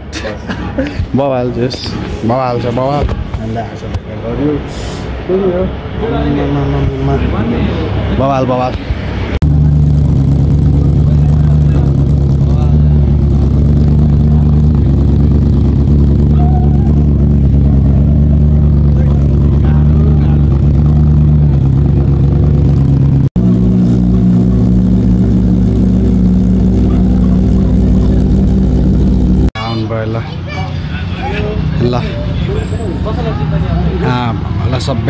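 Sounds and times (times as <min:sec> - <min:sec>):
motorcycle engine running: 0:09.4 - 0:29.6.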